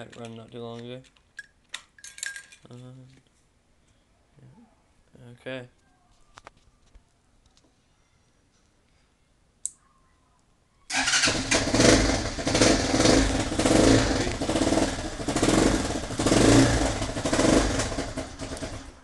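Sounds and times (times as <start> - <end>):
dirt bike engine revving: 10.9 - 18.9.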